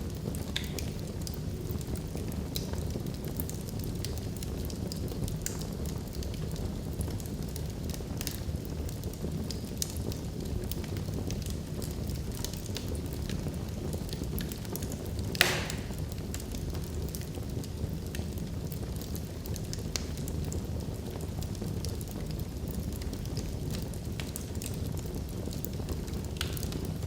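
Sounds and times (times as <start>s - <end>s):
fire crackling: 0.0s - 27.0s
wood fire burning: 0.0s - 27.0s
loud pop of burning log: 15.3s - 16.4s.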